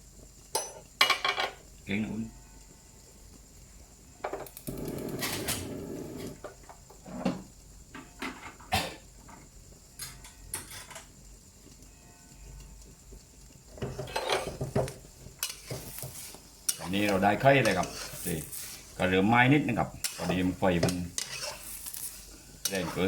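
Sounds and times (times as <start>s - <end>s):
utensil scraping pot: 13.7s - 23.0s
metal utensils clinking on pots: 13.8s - 18.8s, 19.9s - 23.0s.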